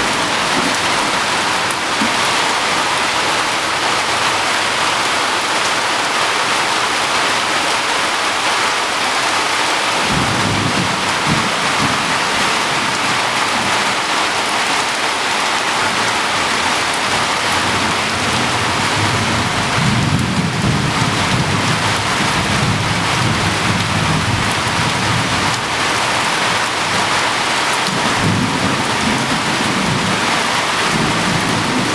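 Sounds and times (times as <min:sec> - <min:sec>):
heavy rain pouring: 0:00.0 - 0:31.9
thunder rumbling: 0:10.0 - 0:14.0, 0:17.1 - 0:27.2, 0:27.9 - 0:31.9.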